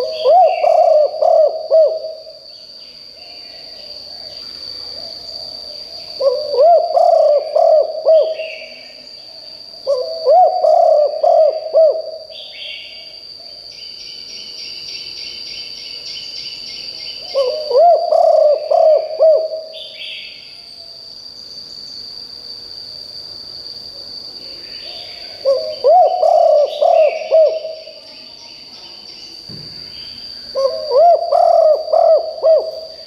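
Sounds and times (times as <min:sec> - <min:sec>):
dove cooing: 0:00.0 - 0:02.4, 0:06.2 - 0:08.8, 0:09.9 - 0:12.7, 0:17.2 - 0:19.8, 0:24.8 - 0:28.0, 0:30.5 - 0:33.0.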